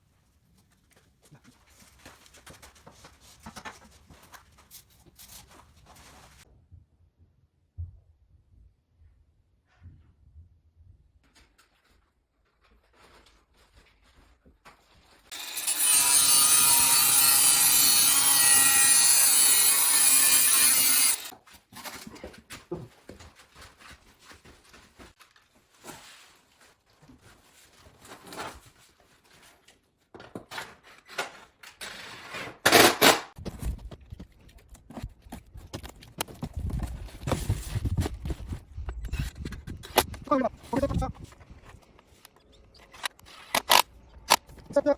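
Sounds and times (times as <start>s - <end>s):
knocks and clatter of materials: 1.1s - 6.4s, 21.3s - 32.0s
power tool cutting: 15.3s - 21.3s.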